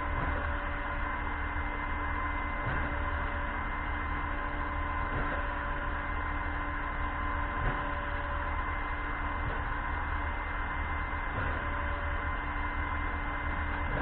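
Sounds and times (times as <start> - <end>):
concrete pump truck humming: 0.0 - 14.0.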